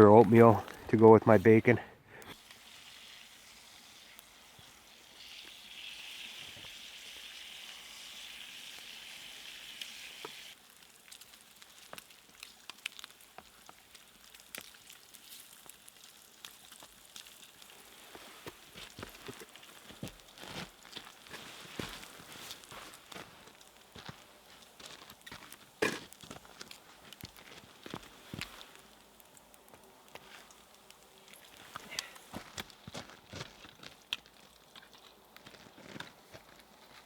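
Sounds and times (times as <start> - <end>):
bacon sizzling in a pan: 2.3 - 32.6
fire pops and crackles: 9.8 - 37.0.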